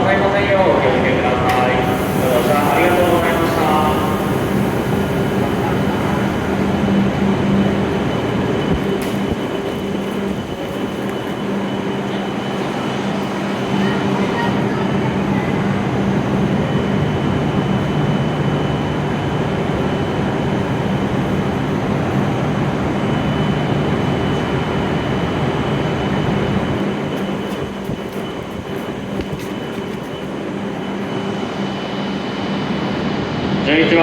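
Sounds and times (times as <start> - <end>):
faint high whine: 0.0 - 34.0
train rumbling to a stop: 0.0 - 34.0.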